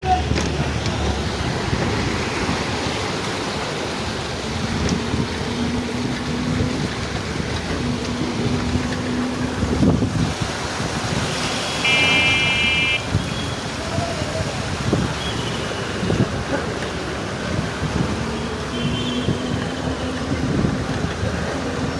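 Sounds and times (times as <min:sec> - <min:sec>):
traffic on flooded street: 0:00.0 - 0:21.9
car horn: 0:11.4 - 0:13.6, 0:18.7 - 0:19.5.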